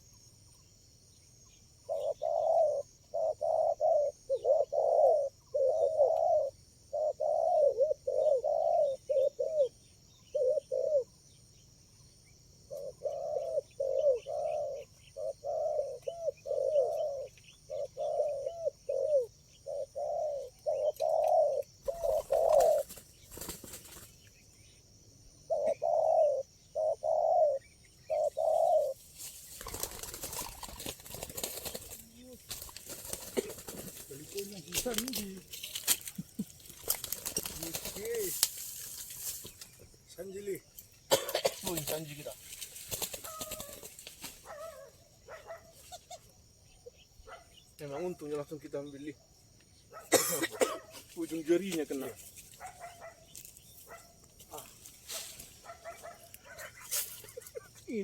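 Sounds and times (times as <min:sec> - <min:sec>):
doves cooing: 0:01.8 - 0:11.2, 0:12.6 - 0:24.2, 0:25.4 - 0:40.4, 0:41.1 - 0:48.4, 0:55.6 - 0:58.0
rustling noise: 0:30.4 - 0:39.8, 0:53.3 - 0:55.8.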